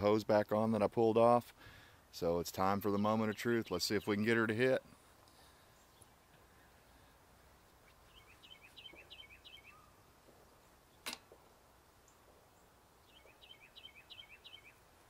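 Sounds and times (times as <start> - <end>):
songbird chirping faintly: 0.0 - 15.0
sharp click: 11.0 - 11.3.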